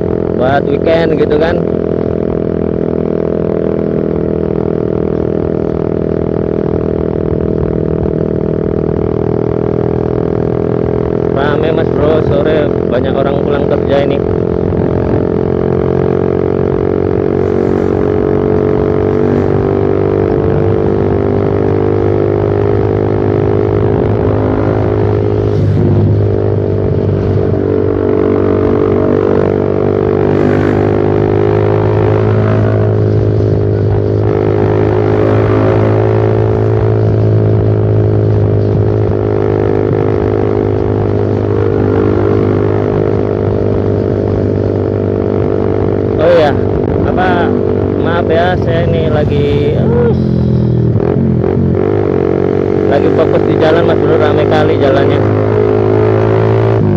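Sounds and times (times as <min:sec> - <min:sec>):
motorcycle exhaust drone: 0:00.0 - 0:56.9.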